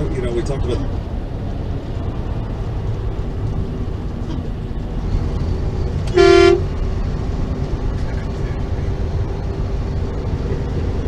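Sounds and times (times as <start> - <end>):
road noise: 0.0 - 11.0
truck engine rumble: 0.0 - 11.0
truck horn blast: 6.1 - 6.6.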